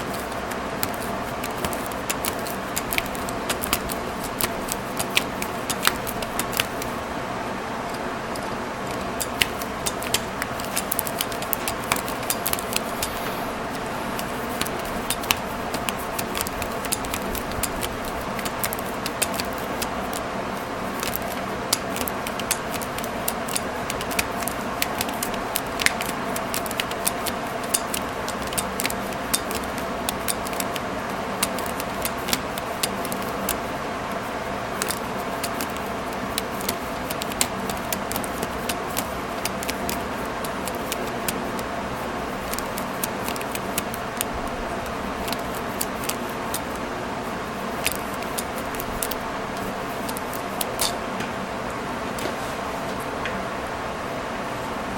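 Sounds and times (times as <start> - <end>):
steady hum: 0.0 - 54.9.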